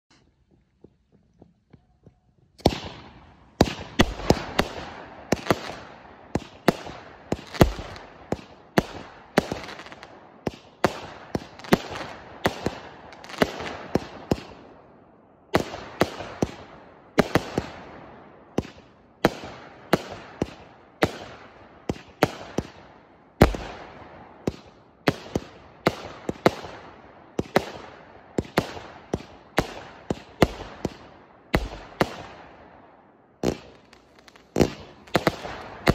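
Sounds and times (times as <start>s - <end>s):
fireworks bangs: 2.6s - 14.6s, 23.4s - 32.5s, 33.4s - 35.9s.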